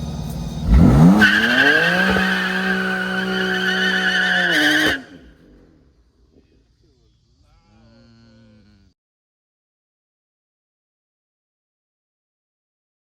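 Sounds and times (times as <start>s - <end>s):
car engine revving hard: 0.2s - 5.8s
tyres squealing: 0.7s - 5.3s.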